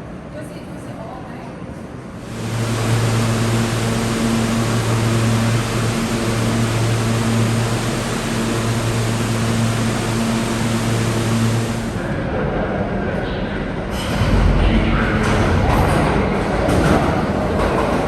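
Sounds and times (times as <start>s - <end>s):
low hum: 2.2s - 12.1s.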